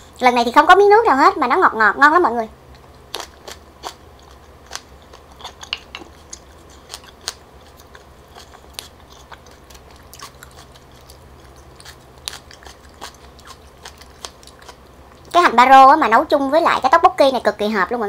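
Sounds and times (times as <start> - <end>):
low steady hum: 0.0 - 18.0
wet chewing clicks and smacks: 2.7 - 15.4.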